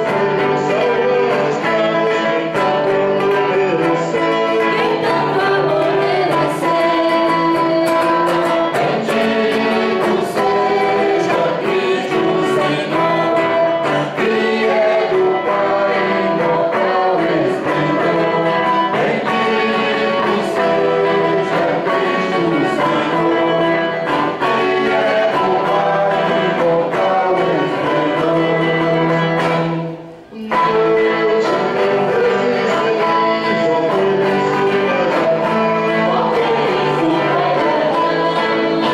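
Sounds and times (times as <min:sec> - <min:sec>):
guitar accompaniment: 0:00.0 - 0:38.9
voices singing a hymn: 0:00.0 - 0:38.9.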